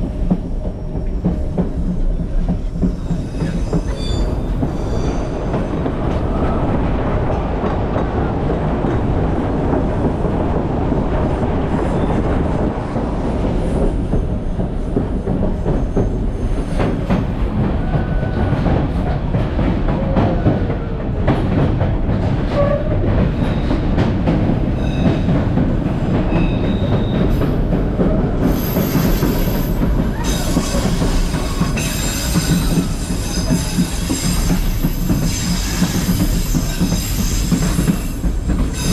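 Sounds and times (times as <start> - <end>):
train wheels rumbling on track: 0.0 - 38.9
wheel squeal: 2.8 - 5.3.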